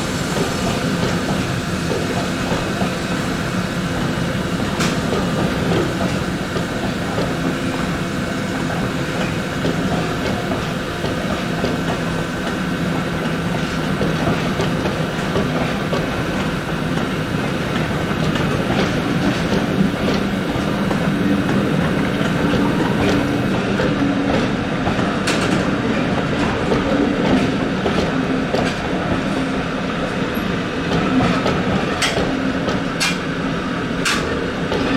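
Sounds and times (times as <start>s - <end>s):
train rolling along track: 0.0s - 34.9s
wheels clicking over rail joints: 8.6s - 23.5s.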